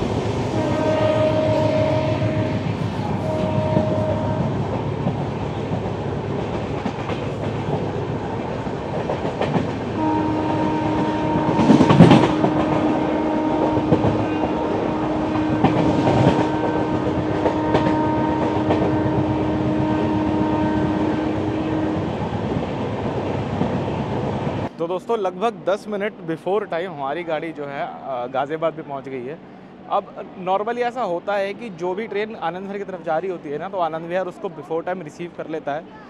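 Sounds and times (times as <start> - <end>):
express train running: 0.0 - 36.0
train horn long note: 0.5 - 4.7, 10.0 - 22.2
wheels clattering on rails: 2.6 - 20.4.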